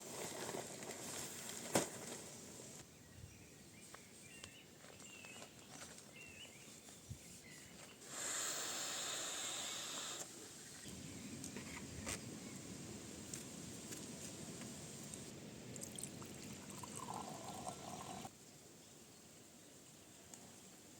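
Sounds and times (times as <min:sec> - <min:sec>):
bird chirps: 0:02.9 - 0:08.0
rushing hiss: 0:08.0 - 0:10.8.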